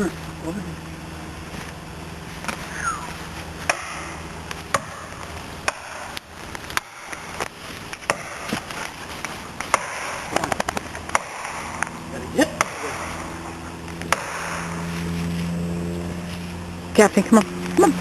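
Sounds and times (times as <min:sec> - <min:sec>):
sharp knocks: 0:08.0 - 0:08.6.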